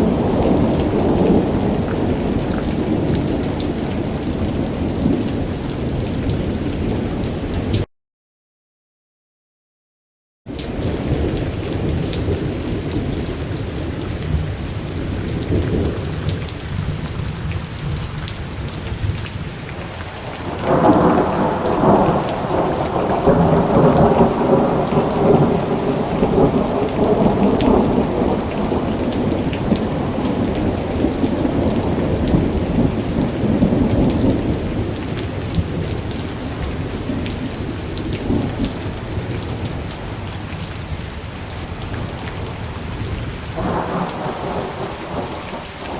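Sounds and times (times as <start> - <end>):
loud crack of thunder: 0.0 - 7.0, 20.3 - 36.0, 43.6 - 45.9
low rumble of thunder: 0.0 - 7.8, 10.6 - 19.5, 20.1 - 41.1, 41.9 - 45.9
steady rain: 0.0 - 7.9, 10.5 - 45.9.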